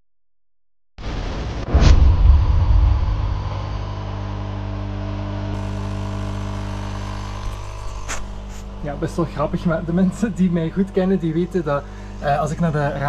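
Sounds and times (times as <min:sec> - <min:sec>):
car engine running: 0:05.0 - 0:08.8.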